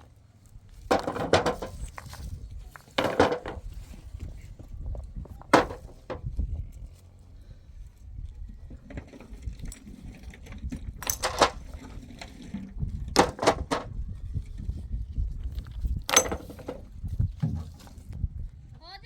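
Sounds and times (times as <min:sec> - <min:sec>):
hard objects clinking and knocking: 0:02.8 - 0:03.6, 0:10.8 - 0:11.8, 0:16.0 - 0:16.9.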